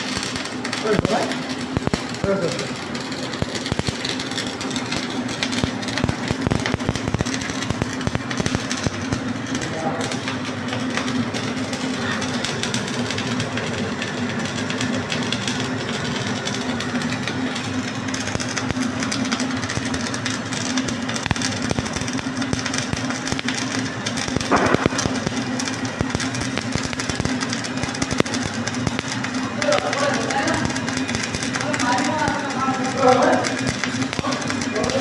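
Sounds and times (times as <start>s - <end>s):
welding arc crackling and popping: 0.0s - 35.0s
steady low hum: 19.6s - 29.5s.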